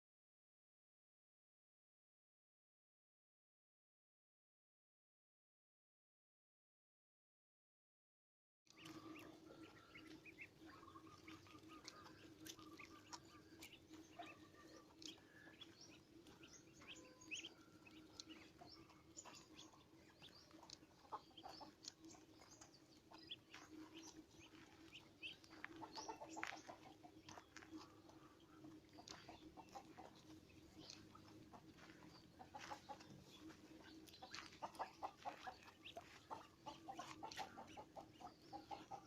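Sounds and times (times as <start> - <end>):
birds chirping: 8.7 - 39.0
steady low hum: 8.9 - 39.0.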